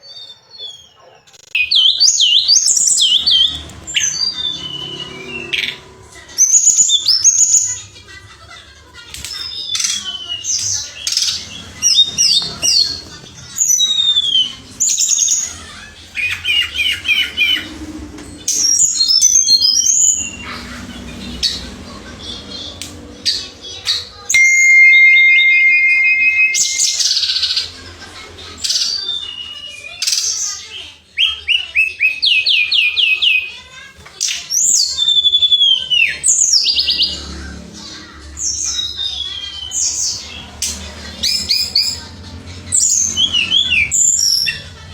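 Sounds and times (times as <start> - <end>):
bird song with trills: 0.0 - 7.9, 9.2 - 17.7, 18.4 - 27.8, 34.2 - 37.3, 37.9 - 44.8.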